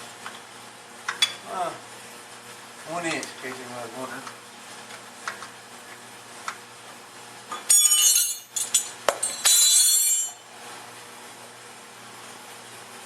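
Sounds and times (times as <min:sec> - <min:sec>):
metal hand tools clinking: 0:07.7 - 0:10.4.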